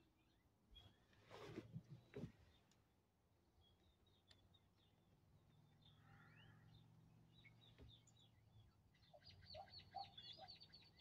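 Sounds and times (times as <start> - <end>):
faint bird chirps: 3.6 - 11.0.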